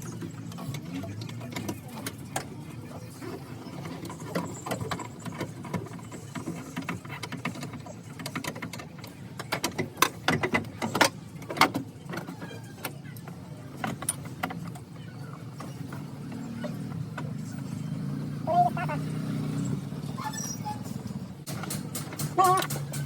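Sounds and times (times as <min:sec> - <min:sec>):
sharp metal clanks: 0:20.9 - 0:23.0
hand tools clicking on metal: 0:21.4 - 0:23.0.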